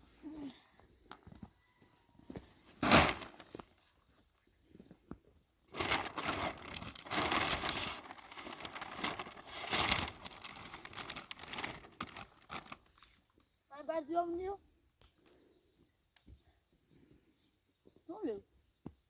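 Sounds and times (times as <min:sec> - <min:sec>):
wrapping crinkling and rustling: 0:02.8 - 0:03.7, 0:05.7 - 0:13.2.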